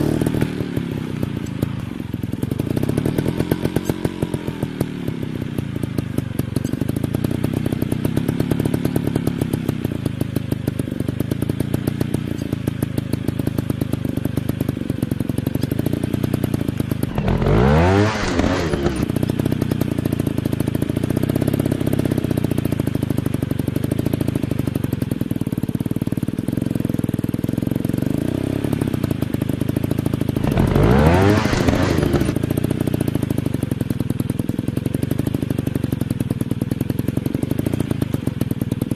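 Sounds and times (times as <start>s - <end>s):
dirt bike passing by: 0.0s - 6.4s, 17.0s - 19.4s, 30.4s - 32.7s
dirt bike engines running: 0.0s - 26.8s, 27.7s - 34.3s.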